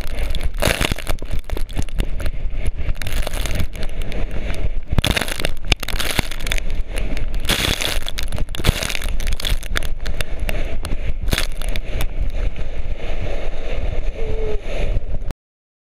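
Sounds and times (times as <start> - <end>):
board scraping over gravel: 0.0 - 12.5
wind rumbling on microphone: 0.0 - 15.3.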